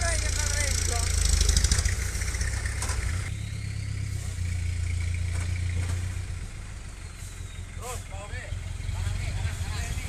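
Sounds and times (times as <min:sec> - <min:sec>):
diesel truck engine rumbling: 0:00.0 - 0:10.0.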